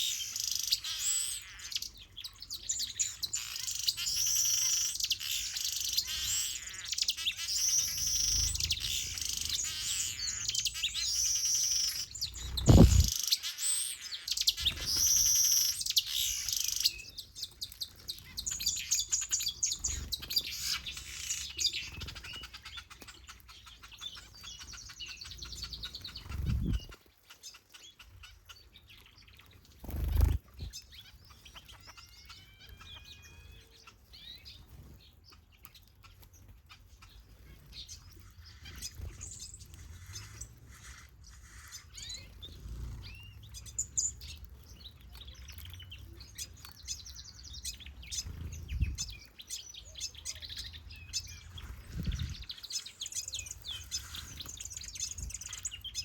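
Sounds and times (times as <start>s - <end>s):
birds chirping and singing: 0.0s - 56.0s
dull low thumps: 12.6s - 13.1s.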